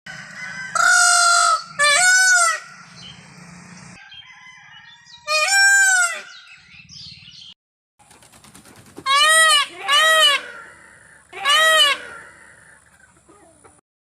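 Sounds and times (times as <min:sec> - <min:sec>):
rooster crowing: 0:00.1 - 0:03.1, 0:03.9 - 0:06.4.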